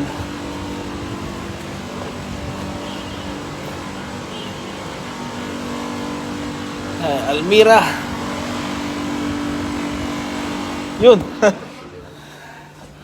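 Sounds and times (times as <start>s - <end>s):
car engine running: 0.0s - 11.7s
constant low hum: 0.0s - 13.0s
road noise: 0.0s - 13.0s.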